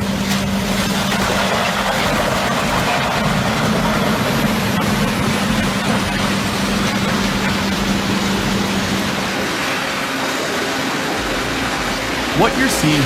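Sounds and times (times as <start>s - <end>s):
heavy machinery running: 0.0s - 13.0s.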